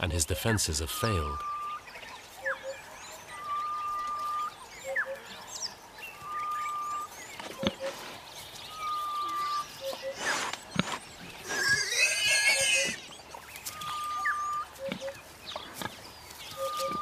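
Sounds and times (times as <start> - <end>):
faint high bird chirps: 0.4 - 17.0
bird calling with whistle: 6.2 - 7.9, 13.6 - 15.2, 16.5 - 17.0.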